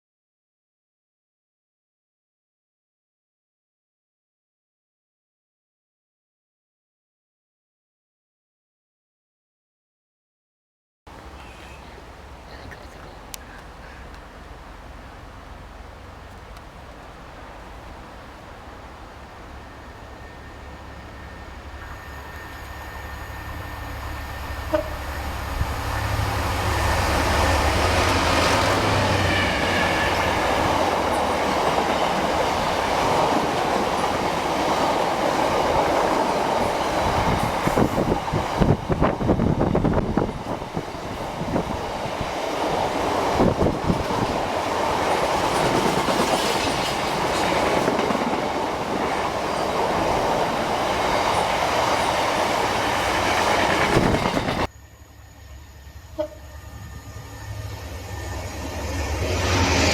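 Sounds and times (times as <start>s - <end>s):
wheels clattering over rail joints: 42.7s - 54.7s.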